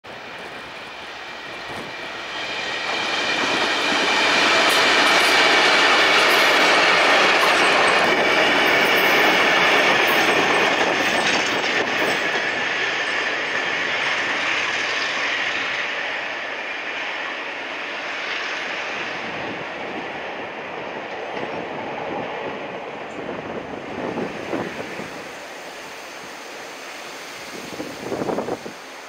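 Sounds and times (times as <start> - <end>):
freight train passing: 0.0 - 29.0
wheels clicking over rail joints: 2.9 - 13.7.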